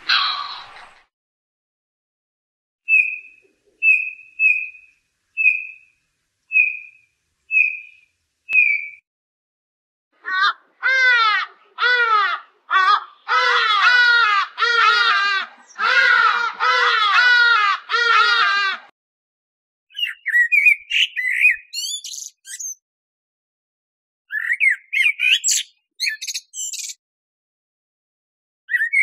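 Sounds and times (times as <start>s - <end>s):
ibis rough calls: 0.0s - 1.0s
bullfinch piping notes: 6.5s - 9.0s.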